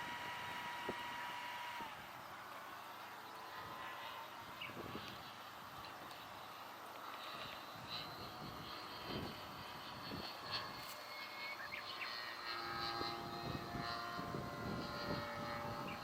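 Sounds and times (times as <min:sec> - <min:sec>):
model airplane motor droning: 0:00.0 - 0:16.0
wind gusts on microphone: 0:03.6 - 0:06.0, 0:07.2 - 0:10.9, 0:12.4 - 0:16.0.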